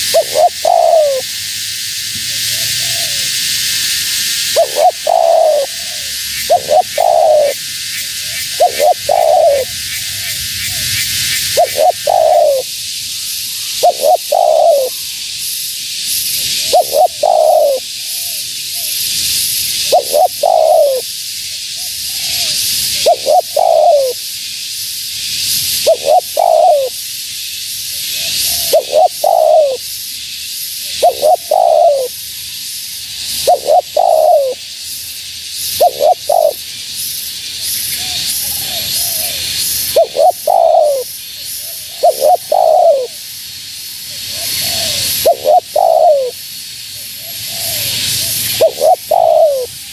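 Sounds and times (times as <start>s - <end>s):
dove cooing: 0.0s - 1.3s, 2.3s - 3.5s, 4.4s - 12.7s, 13.6s - 15.0s, 16.5s - 19.0s, 19.7s - 21.1s, 21.8s - 24.2s, 25.7s - 27.0s, 27.9s - 29.8s, 30.9s - 32.1s, 33.4s - 34.7s, 35.8s - 36.6s, 37.9s - 43.2s, 44.1s - 46.4s, 47.0s - 49.7s
steady high hiss: 0.0s - 49.9s.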